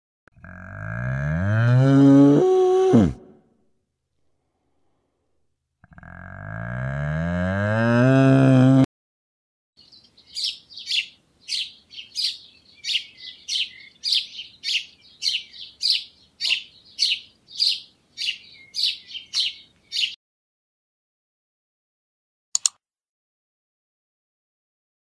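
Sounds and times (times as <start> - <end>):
bird chirping: 9.8 - 20.2.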